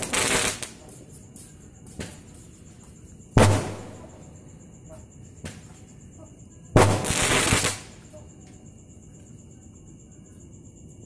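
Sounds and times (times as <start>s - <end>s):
faint firework pops: 1.8s - 2.4s, 3.4s - 4.2s, 5.4s - 5.8s, 6.8s - 8.6s
firework loud bang: 3.4s - 4.2s, 6.8s - 7.9s.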